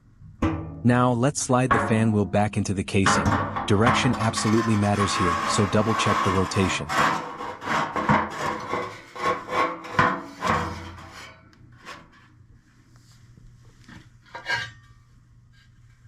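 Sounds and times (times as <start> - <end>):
fan wheel scraping against housing: 3.0 - 12.2.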